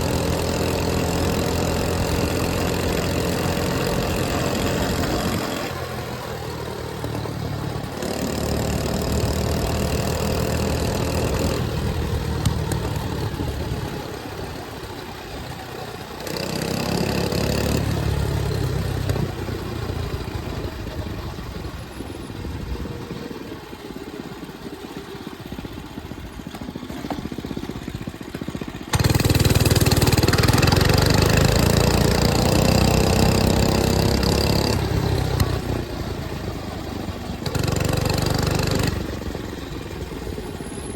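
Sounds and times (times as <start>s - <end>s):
mini bike engine accelerating: 0.0s - 40.9s.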